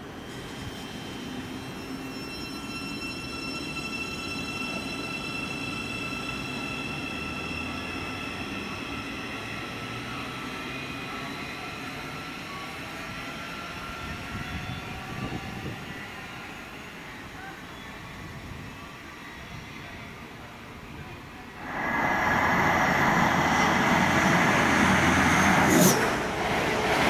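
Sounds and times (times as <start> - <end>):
train rumbling past: 21.4 - 27.0
high whine falling in pitch: 21.6 - 25.5.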